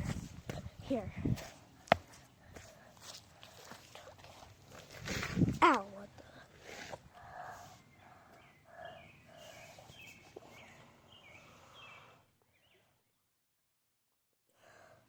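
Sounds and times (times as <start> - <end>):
bird chirping: 7.2 - 13.2.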